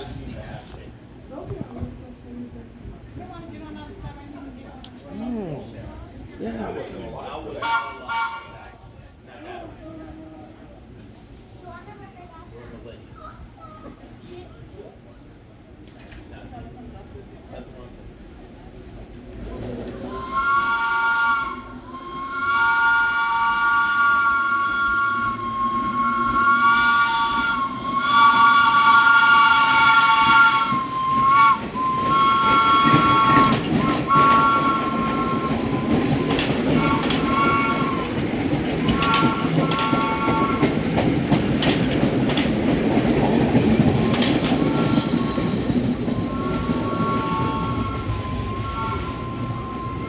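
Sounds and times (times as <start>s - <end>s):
train wheels rumbling on track: 0.0s - 50.0s
train horn blasts: 7.6s - 8.8s, 20.1s - 38.2s, 38.8s - 40.9s, 46.3s - 50.0s.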